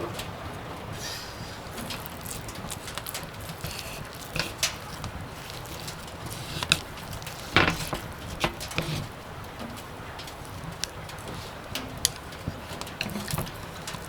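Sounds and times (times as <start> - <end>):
rustling burst: 0.9 - 9.2
light clicks and knocks: 1.7 - 14.0.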